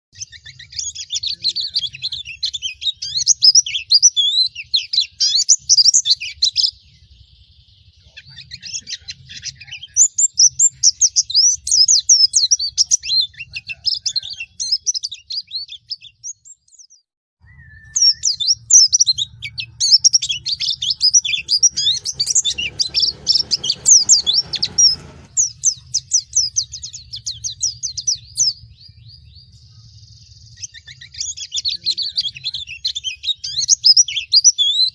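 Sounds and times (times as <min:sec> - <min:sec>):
bird singing rapid chirps: 0:00.1 - 0:34.9.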